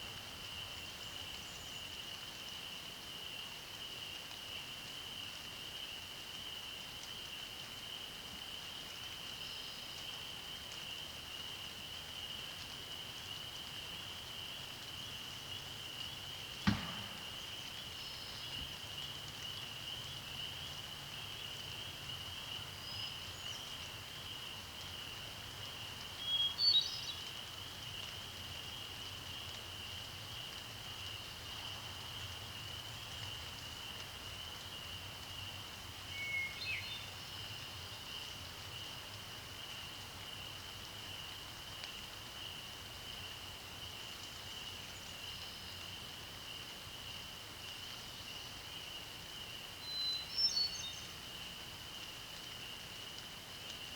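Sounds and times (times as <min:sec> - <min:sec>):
faint hiss: 0:00.0 - 0:53.9
bird song: 0:16.6 - 0:23.9, 0:26.2 - 0:27.3, 0:36.1 - 0:38.3, 0:49.8 - 0:51.2
sharp tap: 0:16.7 - 0:17.4.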